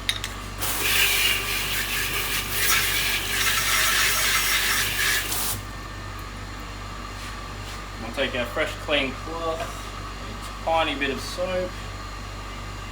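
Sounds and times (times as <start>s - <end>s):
water spray hissing: 0.6s - 5.6s.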